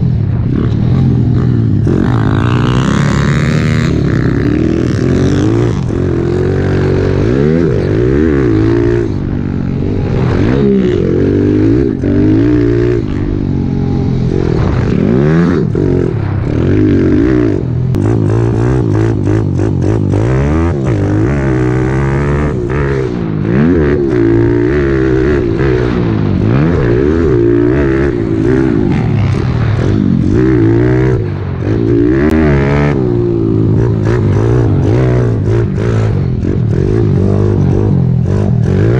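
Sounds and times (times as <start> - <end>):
pit bike engines revving: 0.0 - 38.9.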